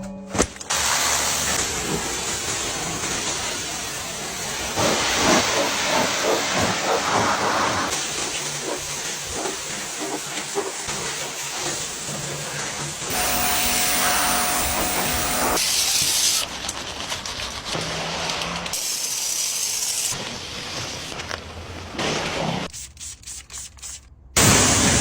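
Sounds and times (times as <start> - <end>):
pressure washer spray hissing: 0.7 - 11.8.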